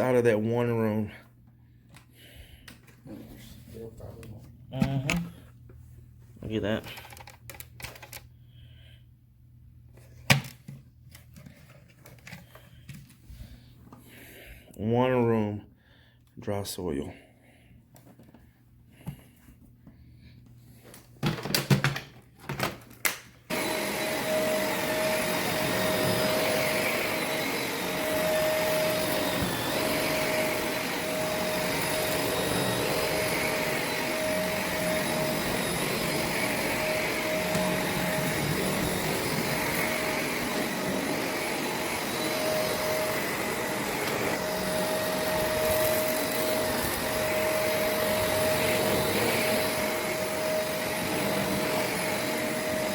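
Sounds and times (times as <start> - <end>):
upright vacuum cleaner running: 23.5 - 52.9.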